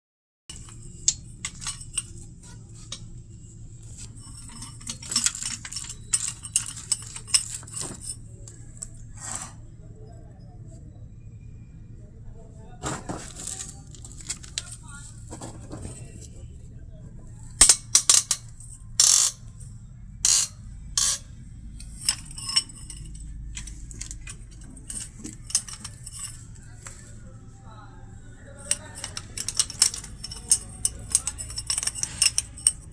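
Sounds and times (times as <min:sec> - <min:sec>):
metal tools clicking and clinking: 0:00.5 - 0:08.9, 0:13.1 - 0:16.3, 0:17.5 - 0:27.3, 0:28.2 - 0:32.9
low steady hum: 0:00.5 - 0:32.9.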